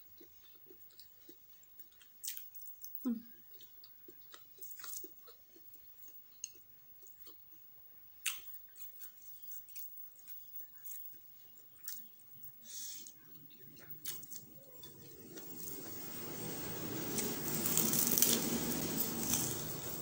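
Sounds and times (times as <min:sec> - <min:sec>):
close chewing: 0:00.0 - 0:16.0.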